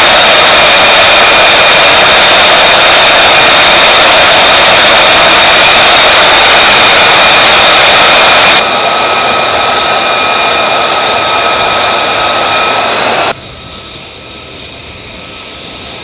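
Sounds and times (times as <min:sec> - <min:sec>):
jet engine whining roar: 0:00.0 - 0:16.0.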